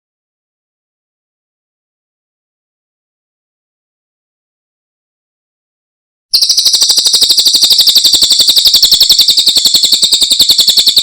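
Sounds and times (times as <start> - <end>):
songbird rapid trill: 6.3 - 11.0.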